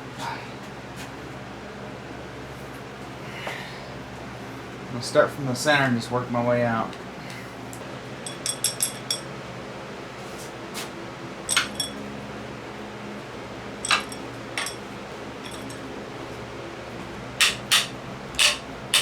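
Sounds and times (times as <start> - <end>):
hand tools clinking on metal: 11.5 - 12.0, 13.8 - 14.8, 15.4 - 15.9.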